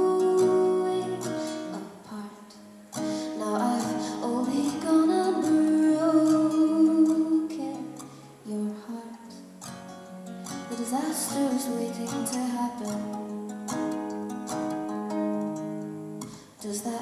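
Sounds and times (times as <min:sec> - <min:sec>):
woman singing: 0:00.0 - 0:09.5, 0:10.5 - 0:17.0
acoustic guitar strumming: 0:00.0 - 0:17.0.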